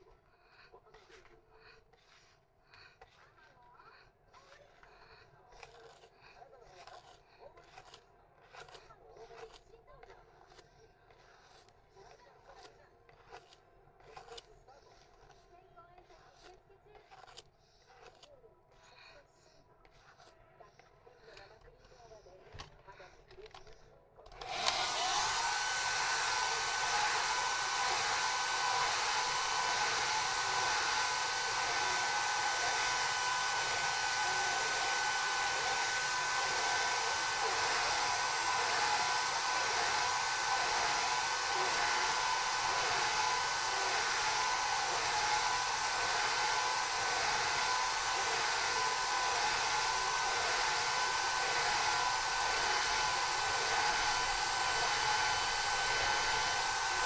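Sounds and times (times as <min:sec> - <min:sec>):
hair dryer blowing: 0:24.3 - 0:57.0.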